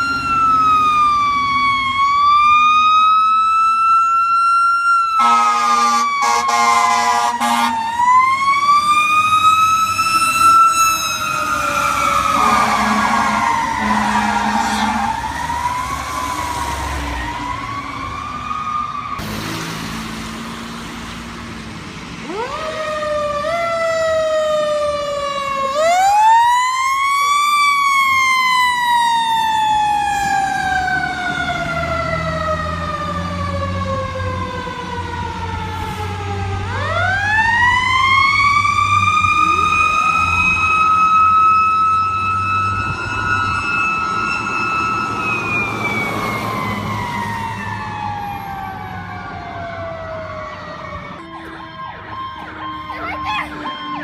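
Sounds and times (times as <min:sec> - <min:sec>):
fire truck siren wailing: 0:00.0 - 0:54.0
heavy truck engine rumbling: 0:05.2 - 0:26.2.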